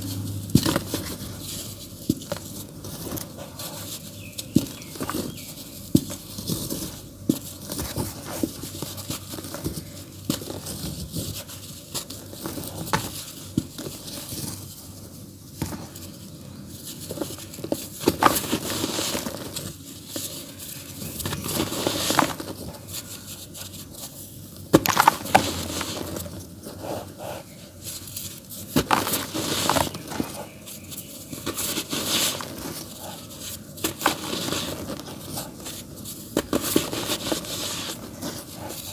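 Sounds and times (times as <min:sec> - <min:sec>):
dry dirt crumbling: 0:24.7 - 0:26.5.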